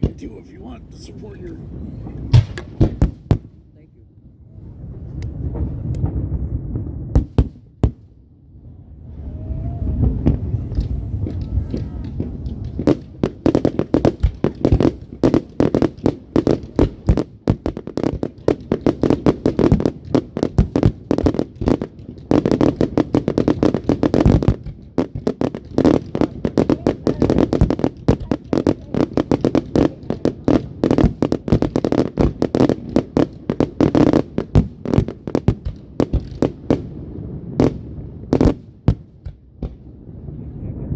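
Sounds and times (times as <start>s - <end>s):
fireworks cracks and bangs: 0.0s - 3.6s, 5.0s - 8.2s, 9.7s - 40.0s
low rumble: 8.2s - 13.4s.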